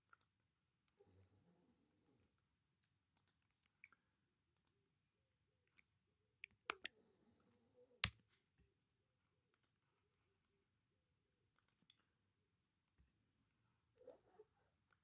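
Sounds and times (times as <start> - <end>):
mouse and keyboard clicks: 6.4 - 6.9.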